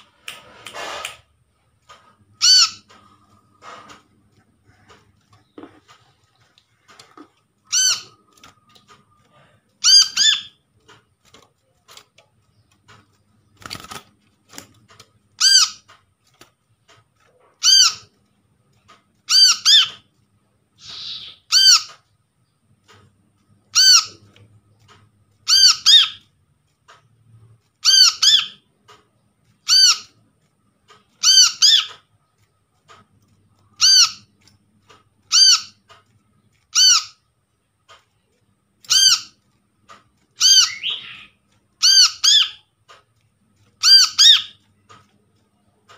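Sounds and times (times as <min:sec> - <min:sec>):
bird calling sharp notes: 0:40.4 - 0:42.6.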